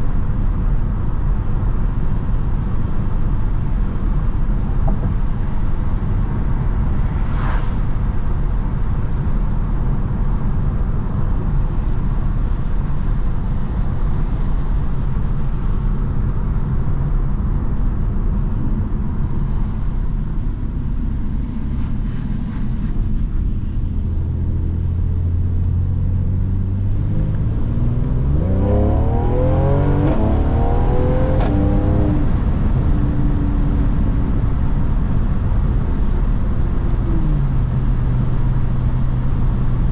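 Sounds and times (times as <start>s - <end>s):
road rumble: 0.0s - 39.9s
car engine accelerating: 20.5s - 39.9s.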